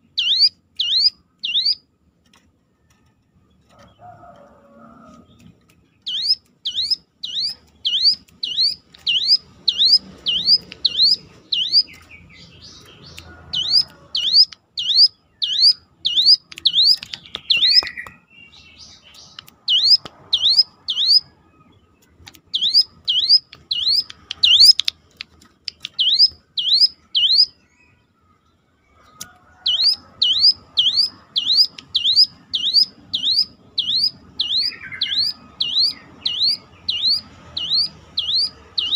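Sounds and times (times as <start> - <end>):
bird singing swooping notes: 6.0 - 24.8, 29.7 - 38.9.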